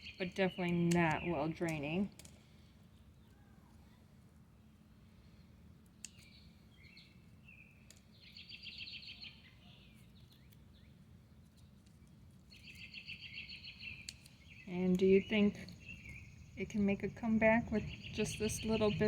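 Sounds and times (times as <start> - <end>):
low steady background rumble: 0.0 - 19.0
small bird chirping and trilling: 6.0 - 11.6, 12.5 - 17.2, 17.8 - 19.0.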